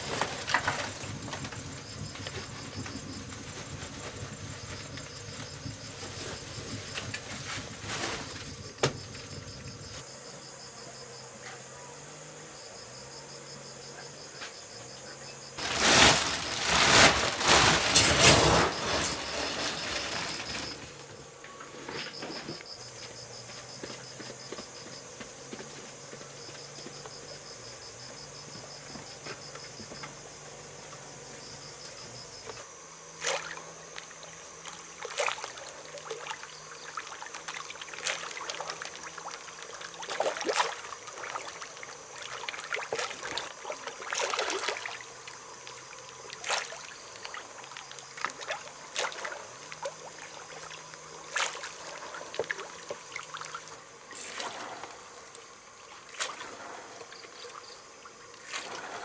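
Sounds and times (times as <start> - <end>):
loud rustling or scraping: 0.0 - 8.6, 15.6 - 21.2
insects chirping in a trill: 0.0 - 59.0.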